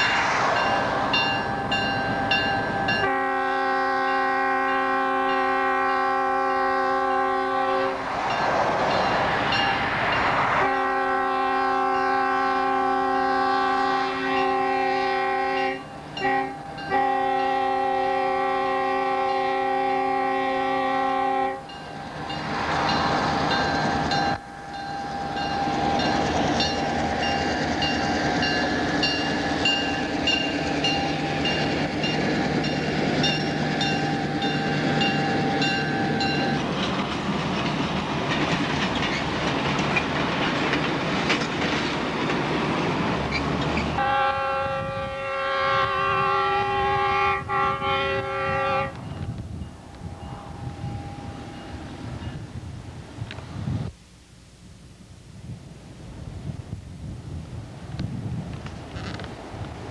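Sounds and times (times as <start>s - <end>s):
rushing noise: 0.0s - 3.1s, 7.7s - 11.8s, 21.7s - 45.2s
train wheel noise: 0.0s - 53.9s, 56.1s - 59.9s
train engine rumble: 0.0s - 59.9s
locomotive air horn chord: 2.3s - 8.0s, 10.5s - 21.8s, 43.9s - 49.2s.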